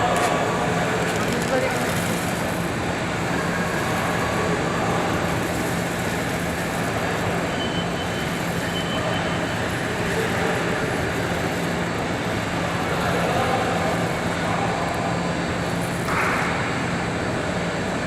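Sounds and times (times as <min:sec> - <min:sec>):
machinery hum: 0:00.0 - 0:18.0.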